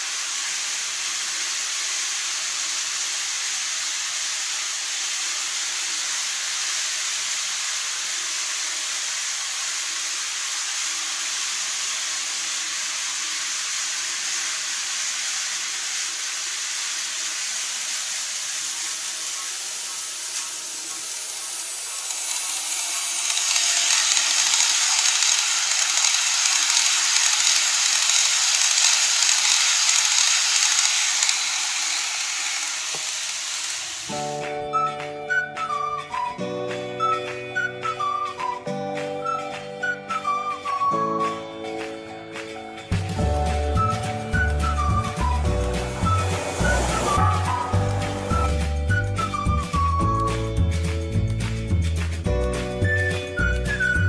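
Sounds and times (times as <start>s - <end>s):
model train whirring: 0.0s - 36.4s, 37.0s - 50.1s, 52.9s - 54.0s.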